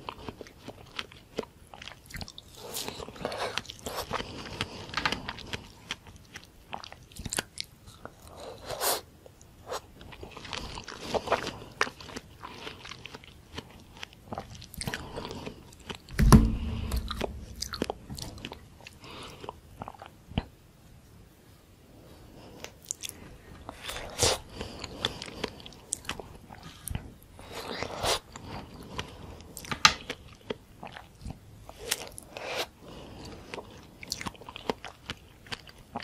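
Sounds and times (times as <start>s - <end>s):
biting and chewing: 9.8s - 20.5s
loud low thump: 16.2s - 17.8s.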